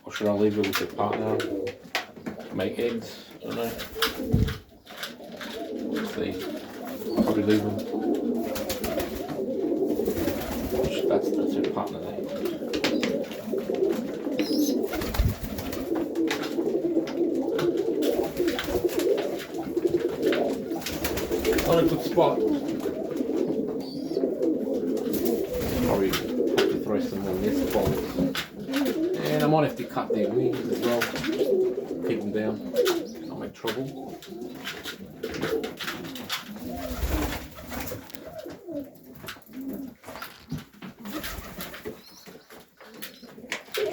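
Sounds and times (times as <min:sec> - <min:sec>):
pigeons cooing: 0:00.0 - 0:43.9
birds clicking and rustling: 0:00.1 - 0:43.9
low thump: 0:04.3 - 0:04.6.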